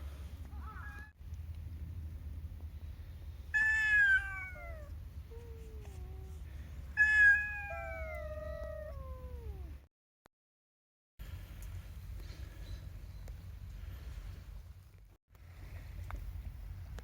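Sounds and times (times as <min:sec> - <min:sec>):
steady low rumble: 0:00.0 - 0:03.6, 0:04.3 - 0:07.0
animal cries sliding downward: 0:03.6 - 0:04.9.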